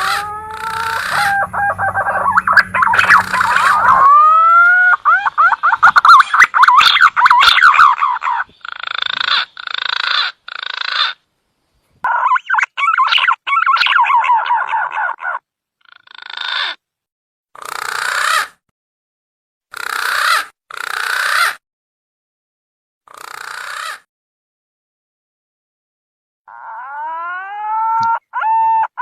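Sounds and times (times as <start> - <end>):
pigeon whistled warbles: 0.0 - 4.2.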